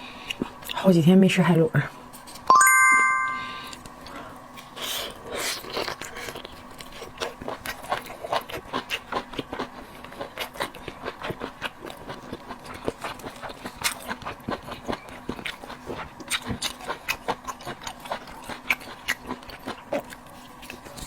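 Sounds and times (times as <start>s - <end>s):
wet chewing and smacking: 4.6s - 21.0s.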